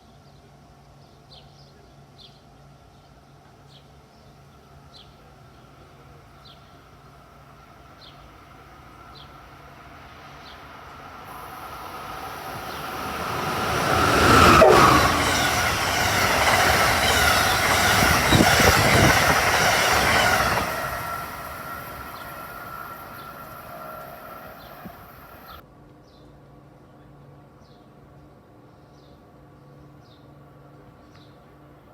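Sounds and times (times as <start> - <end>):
train passing at speed: 4.5 - 25.6
train wheels on rails: 7.4 - 25.6.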